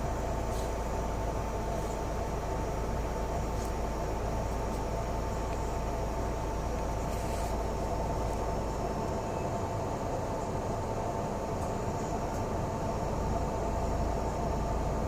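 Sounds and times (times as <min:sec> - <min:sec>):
bus engine and road rumble: 0:00.0 - 0:15.0
constant high hum: 0:00.0 - 0:15.0
hiss: 0:00.4 - 0:00.9.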